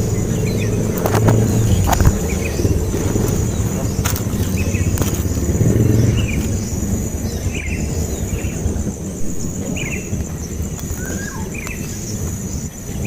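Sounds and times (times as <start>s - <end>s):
high-pitched whine: 0.0s - 13.0s
low rumble: 0.0s - 13.0s
baby bird chirping: 9.6s - 12.1s.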